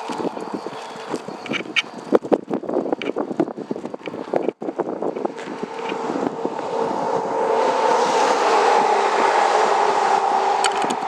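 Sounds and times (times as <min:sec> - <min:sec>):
passing road vehicle: 0:03.0 - 0:11.0.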